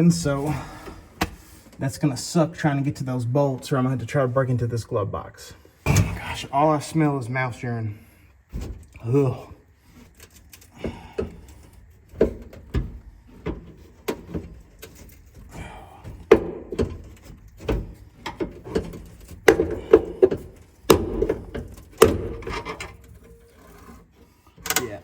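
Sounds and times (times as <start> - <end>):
knocks and rattles on metal dash: 10.8 - 23.2.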